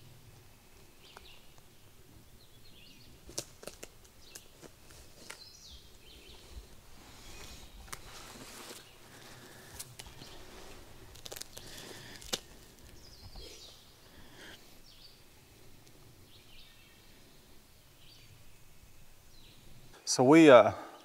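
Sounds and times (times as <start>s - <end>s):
songbirds chirping: 0.0s - 21.0s
rustling: 3.2s - 16.1s.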